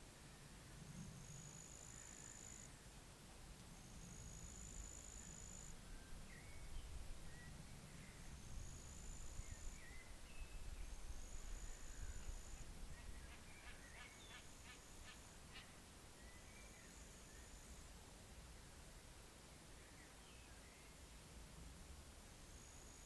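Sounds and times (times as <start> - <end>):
low wind rumble: 5.7 - 14.0
bird chirps: 11.6 - 16.9.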